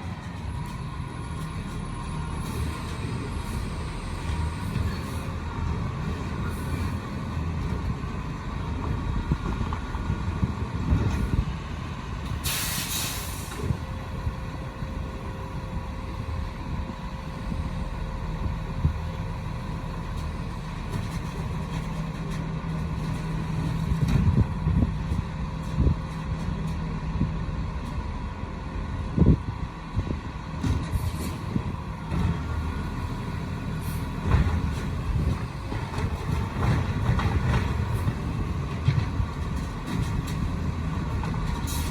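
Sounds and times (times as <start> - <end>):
garbage truck engine running: 0.0 - 41.9
air brake hiss: 12.4 - 13.7.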